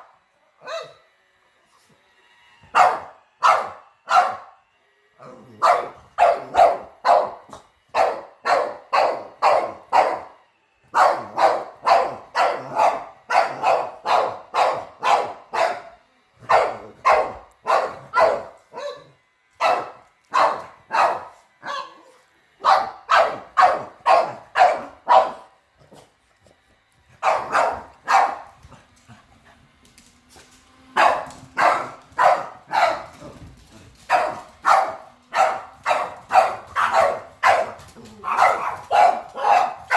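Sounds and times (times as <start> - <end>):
dog barking: 0.6 - 1.1, 2.7 - 4.6, 5.6 - 10.3, 10.9 - 25.6, 27.2 - 28.5, 31.0 - 33.2, 34.1 - 39.9.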